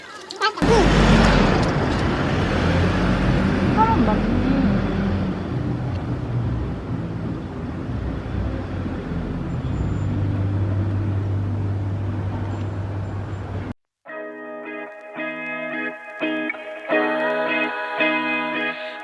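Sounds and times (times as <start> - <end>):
vehicle motor rumble: 0.6 - 13.7
guitar music: 14.1 - 19.0.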